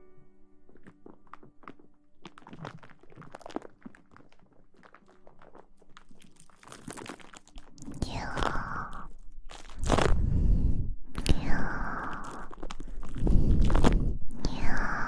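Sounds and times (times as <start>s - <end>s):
faint background music: 0.0s - 8.6s
close rustling crackles and taps: 0.7s - 7.8s.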